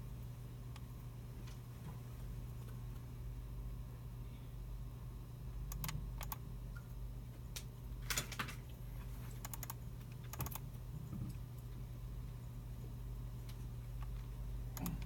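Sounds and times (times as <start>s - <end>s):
steady low hum: 0.0s - 15.0s
keyboard keys clicking: 5.7s - 6.4s, 9.4s - 10.6s.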